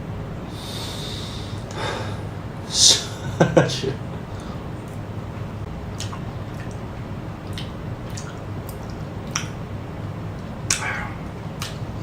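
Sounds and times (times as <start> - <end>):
steady low hum: 0.0 - 12.0
wet chewing clicks and smacks: 5.9 - 9.6, 11.6 - 11.8.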